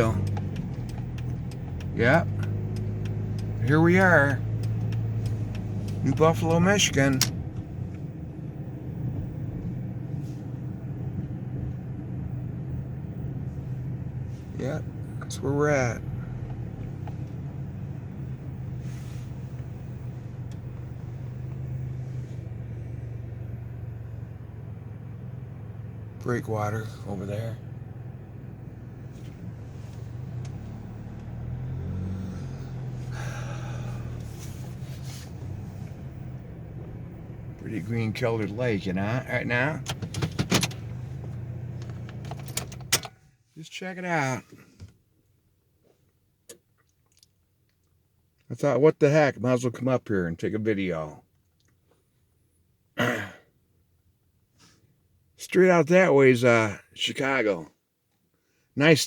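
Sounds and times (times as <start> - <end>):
car cabin hum: 0.0 - 47.0.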